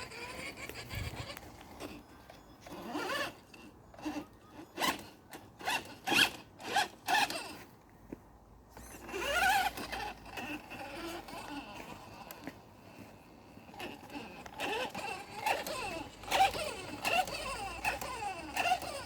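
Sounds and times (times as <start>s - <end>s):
toy car electric motor whining: 0.0s - 7.7s, 8.8s - 19.0s.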